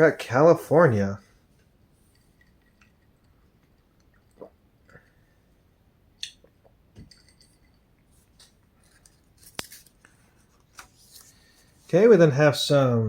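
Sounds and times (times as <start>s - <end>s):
paper pages turning: 8.4s - 12.0s.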